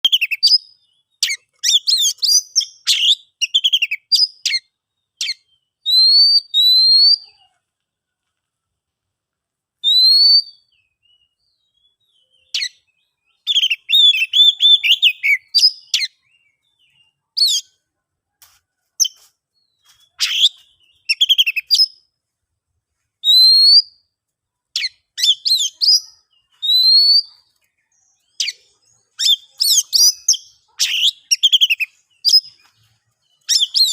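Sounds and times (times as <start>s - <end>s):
bird singing chirps and whistles: 0.0s - 7.4s, 9.8s - 17.7s, 19.0s - 22.0s, 23.2s - 24.1s, 24.8s - 33.9s.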